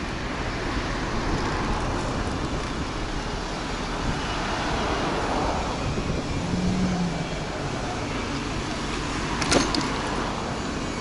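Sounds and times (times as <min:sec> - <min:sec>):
street traffic: 0:00.0 - 0:11.0
wind on microphone: 0:03.9 - 0:07.2.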